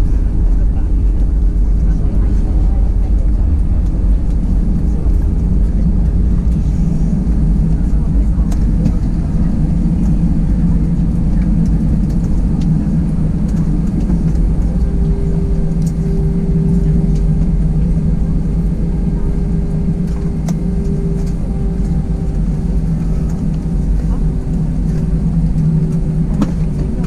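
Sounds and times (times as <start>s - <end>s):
aircraft cabin engine rumble: 0.0s - 27.0s
steady hum tone: 0.0s - 27.0s.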